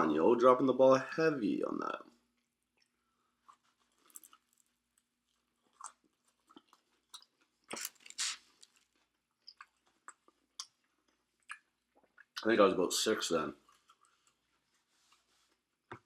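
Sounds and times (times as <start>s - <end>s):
person chewing food: 2.3s - 12.4s, 13.6s - 16.0s.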